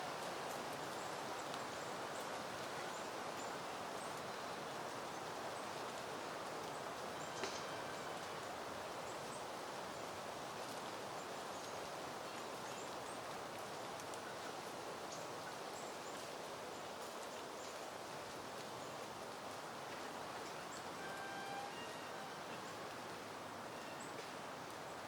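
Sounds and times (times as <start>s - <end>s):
breeze rustling leaves: 0.0s - 25.0s
faint high chirps: 20.9s - 22.7s.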